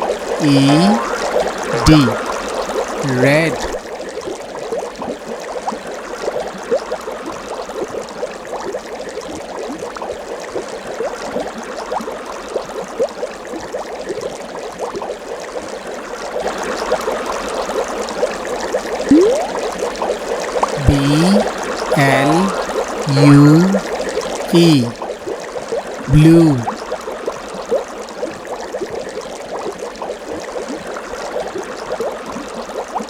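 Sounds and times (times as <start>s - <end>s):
water bubbling and trickling: 19.1s - 19.6s.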